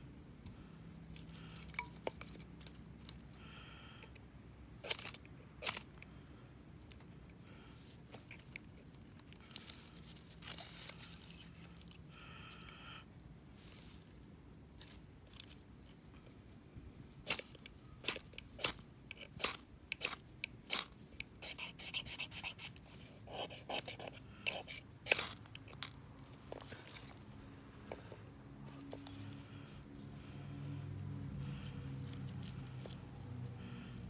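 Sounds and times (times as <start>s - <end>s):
knife scraping wood: 17.3s - 27.2s.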